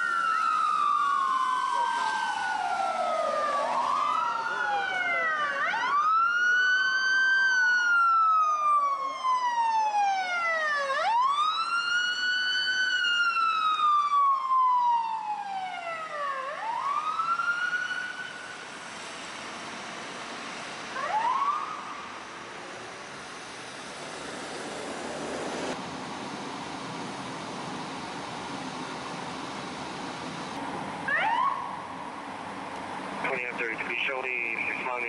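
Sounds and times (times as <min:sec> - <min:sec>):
siren wailing: 0:00.0 - 0:18.6, 0:21.0 - 0:22.2, 0:31.1 - 0:31.9
second faint siren: 0:00.0 - 0:18.8, 0:20.9 - 0:22.4.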